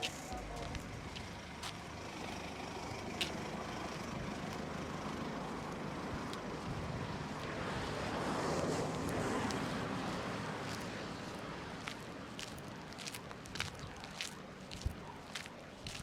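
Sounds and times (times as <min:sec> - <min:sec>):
vehicle passing: 0:00.0 - 0:13.1.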